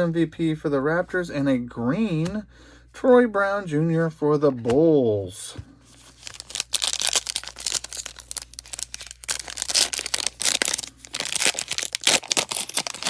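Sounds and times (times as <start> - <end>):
plastic wrapper crinkling and tearing: 6.0 - 13.0.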